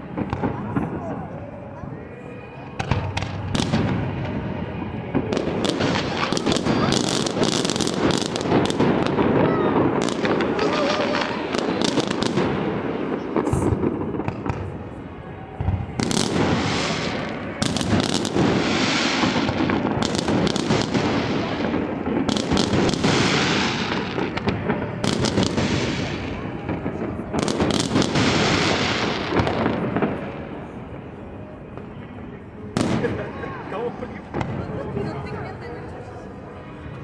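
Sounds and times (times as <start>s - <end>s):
fireworks bangs: 0.0s - 36.0s
fireworks crackling and hiss: 2.8s - 30.8s.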